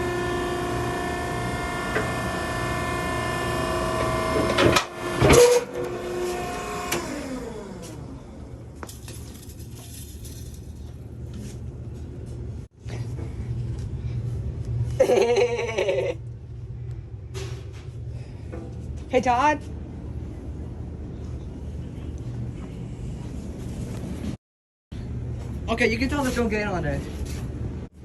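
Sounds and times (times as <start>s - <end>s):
electric motor and pump whining: 0.0s - 8.8s
low hum: 0.0s - 24.4s.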